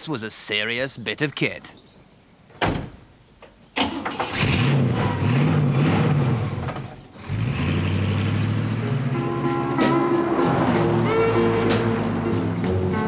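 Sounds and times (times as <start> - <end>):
car engine starting and revving: 3.8 - 13.0
music: 8.5 - 13.0.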